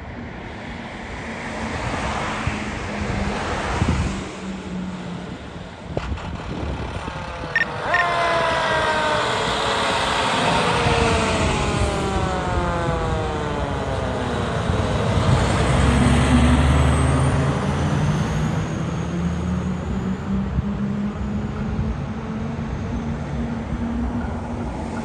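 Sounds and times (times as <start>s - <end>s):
road noise: 0.0s - 25.0s
fire engine siren: 7.5s - 21.0s.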